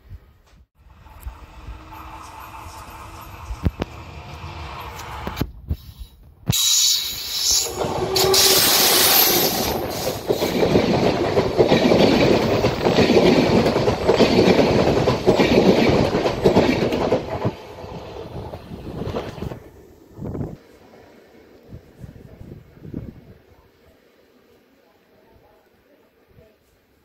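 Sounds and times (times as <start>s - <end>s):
train passing at speed: 0.8s - 25.6s.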